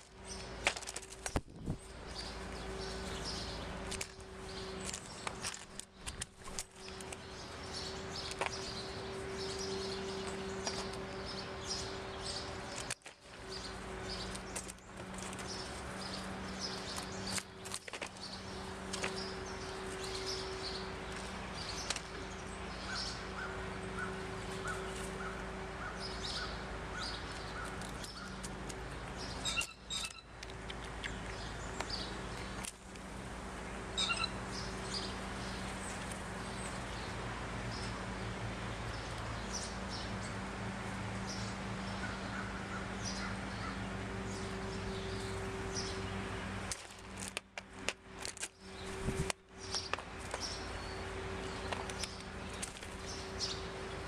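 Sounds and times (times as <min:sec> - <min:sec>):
small birds chirping: 0:00.0 - 0:54.0
steady low hum: 0:00.0 - 0:54.0
lower bird call notes: 0:33.9 - 0:35.6.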